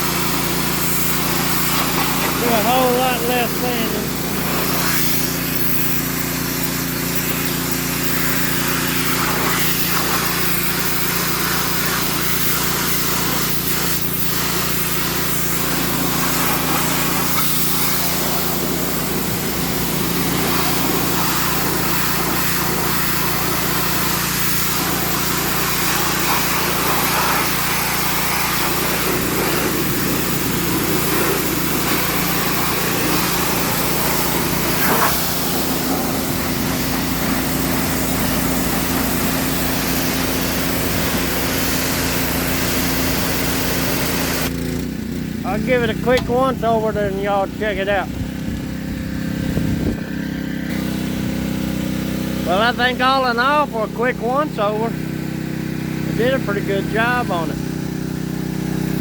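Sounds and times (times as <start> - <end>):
high-pressure spray hissing on metal: 0.0 - 44.6
pressure washer engine running: 0.0 - 59.0.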